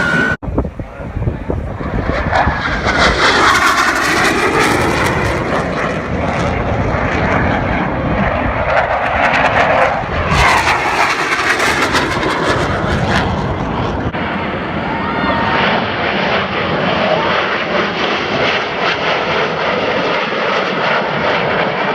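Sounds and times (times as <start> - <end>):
wind buffeting microphone: 0.0 - 15.5
jet roar: 0.0 - 21.9.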